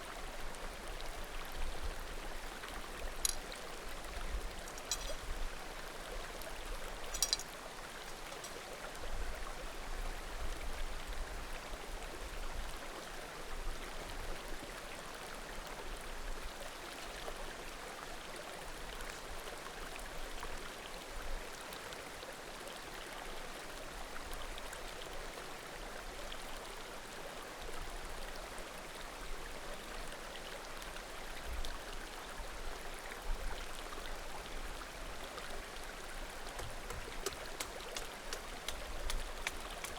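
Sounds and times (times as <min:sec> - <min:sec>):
creek babbling: 0:00.1 - 0:09.6, 0:28.8 - 0:39.9
firewood popping and crackling: 0:36.6 - 0:39.9.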